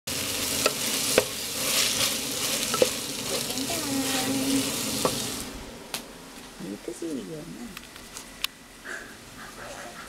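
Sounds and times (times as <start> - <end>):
chicken sizzling in a pot: 0.1 - 5.6
wooden spoon stirring: 0.3 - 5.3.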